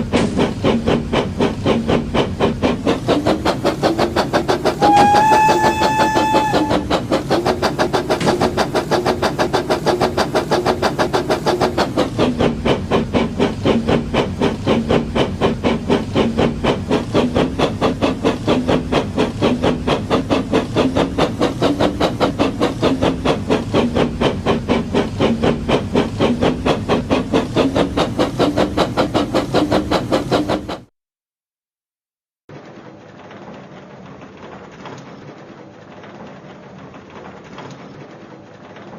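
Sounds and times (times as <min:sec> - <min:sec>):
toy train motor hum and chugging: 0:00.0 - 0:30.9
toy train whistle toot: 0:04.7 - 0:07.0.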